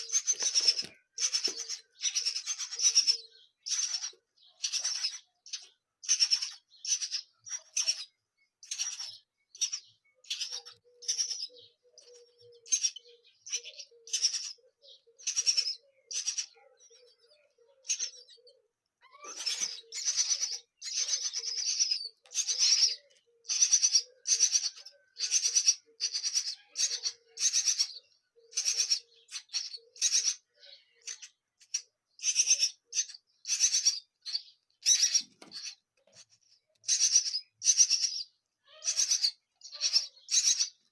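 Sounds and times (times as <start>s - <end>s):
nestling begging chirps: 0.0s - 17.2s, 17.8s - 35.8s, 36.8s - 40.9s.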